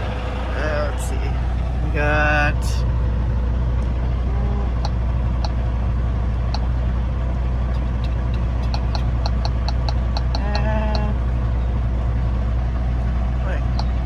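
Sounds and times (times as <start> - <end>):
diesel truck engine idling: 0.0 - 14.0
sharp clicks: 7.7 - 11.1.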